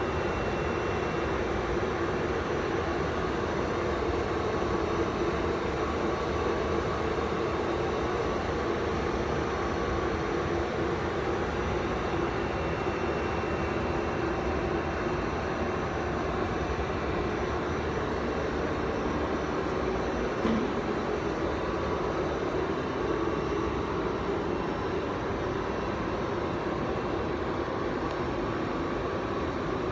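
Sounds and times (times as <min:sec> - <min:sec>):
brief knock: 0:20.4 - 0:21.0.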